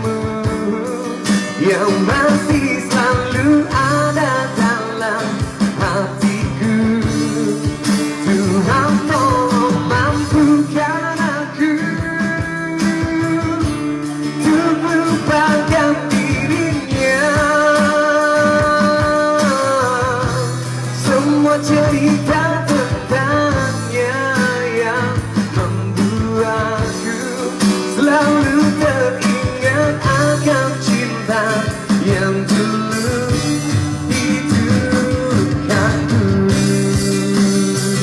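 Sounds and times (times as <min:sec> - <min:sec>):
guitar accompaniment: 0:00.0 - 0:38.0
person singing: 0:00.0 - 0:38.0.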